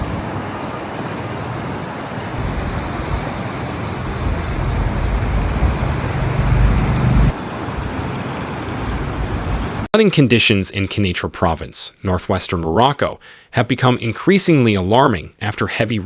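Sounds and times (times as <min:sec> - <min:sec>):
steady rushing noise: 0:00.0 - 0:09.9
vehicle engine running: 0:02.4 - 0:07.4.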